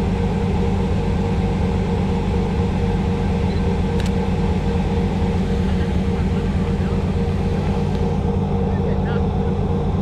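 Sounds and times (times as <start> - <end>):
car engine droning: 0.0 - 10.0
short sharp click: 4.0 - 4.2.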